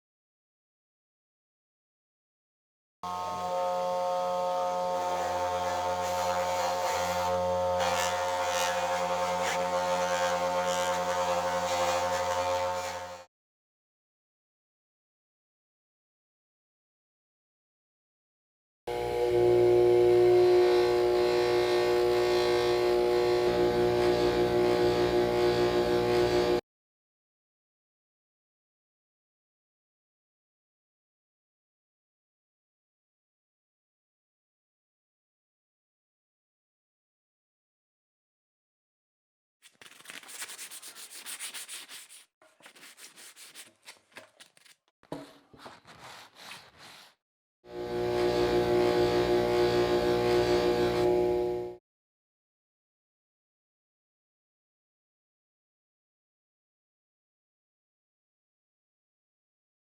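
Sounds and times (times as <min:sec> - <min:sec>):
small electric motor humming: 0:03.1 - 0:13.2, 0:18.9 - 0:26.6, 0:47.7 - 0:51.8
hand scrubbing strokes: 0:39.6 - 0:47.2.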